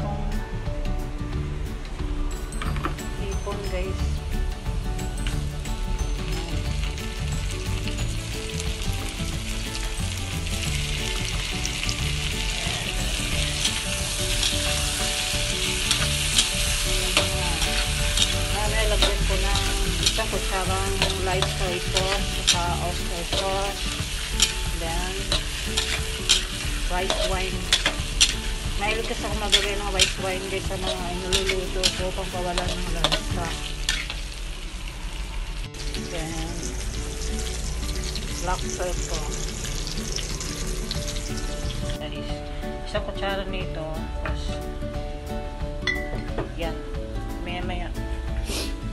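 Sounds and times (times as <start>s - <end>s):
prawns sizzling in butter: 5.2s - 42.0s
ladle clicking and scraping wok: 15.5s - 24.6s, 25.2s - 34.2s.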